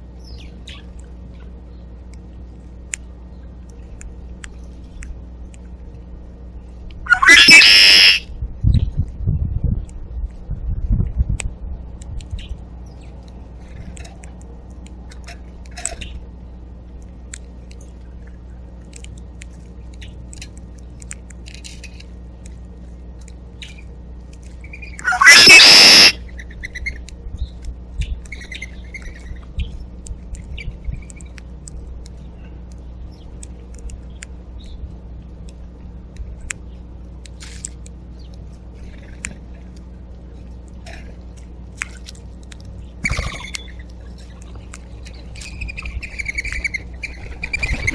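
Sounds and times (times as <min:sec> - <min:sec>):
steady low hum: 0:00.0 - 0:47.9
birds chirping: 0:07.1 - 0:08.2, 0:24.6 - 0:29.9
loud bird call: 0:07.1 - 0:08.3, 0:25.0 - 0:26.2.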